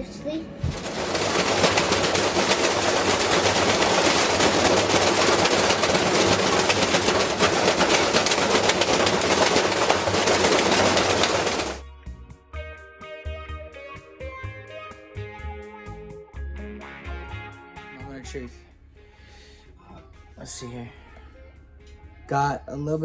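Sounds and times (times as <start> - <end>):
loud dense crackling rattle: 0.6 - 11.8.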